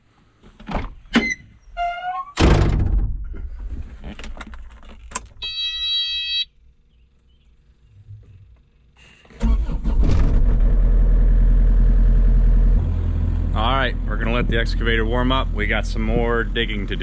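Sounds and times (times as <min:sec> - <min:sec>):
clicks and clunk with rattling: 0:02.4 - 0:05.4
electronic buzzer: 0:05.4 - 0:06.5
electronic chirps: 0:05.4 - 0:06.5.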